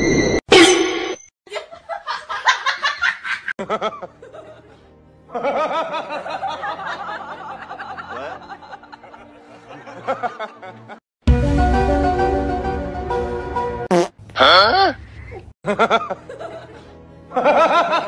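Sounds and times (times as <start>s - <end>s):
background music: 2.6s - 14.1s, 15.6s - 18.0s
snickering laughter: 14.4s - 18.0s.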